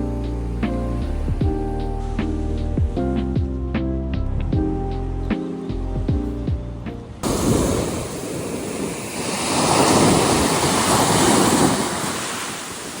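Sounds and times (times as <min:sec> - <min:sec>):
wind buffeting microphone: 0:05.7 - 0:13.0
sea waves washing onto shore: 0:07.2 - 0:13.0.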